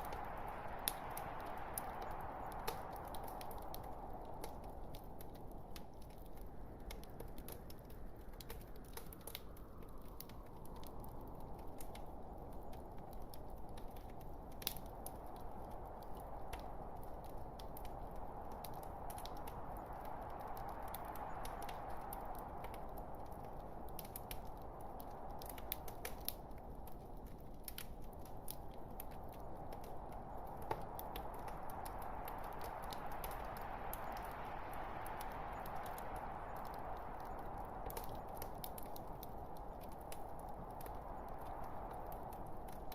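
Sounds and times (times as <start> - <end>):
log fire crackling: 0.0 - 42.9.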